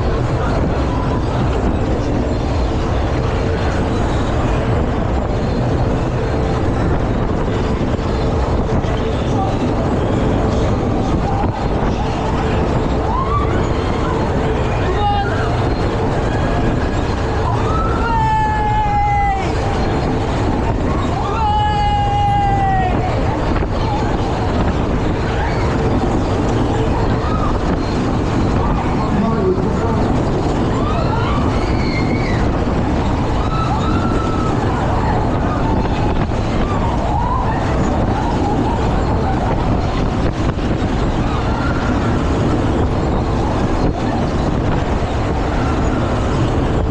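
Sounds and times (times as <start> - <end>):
fairground ride rumbling: 0.0 - 46.9
people crying out: 11.2 - 24.4, 30.4 - 40.1
faint high squeals: 30.4 - 46.8.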